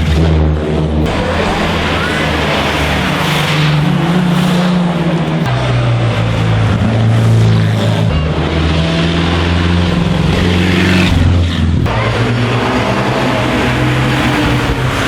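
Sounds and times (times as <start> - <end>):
racing car engines: 0.0 - 15.0.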